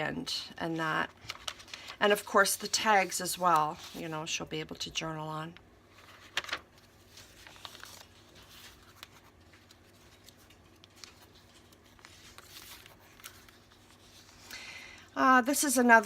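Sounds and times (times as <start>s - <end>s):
paper pages rustling: 0.7s - 4.4s, 5.9s - 14.5s.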